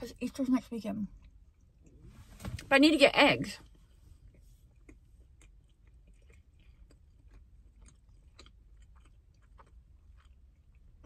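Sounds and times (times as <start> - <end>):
faint chewing: 1.0 - 2.1, 3.6 - 11.0.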